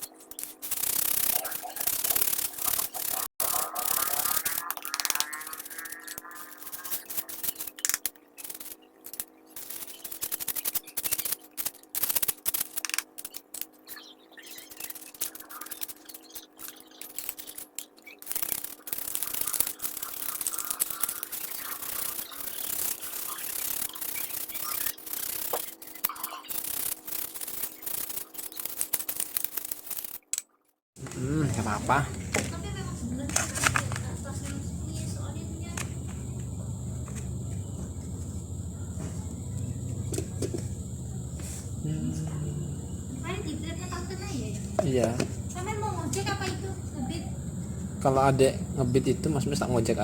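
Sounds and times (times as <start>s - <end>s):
faint steady hum: 31.0s - 50.0s.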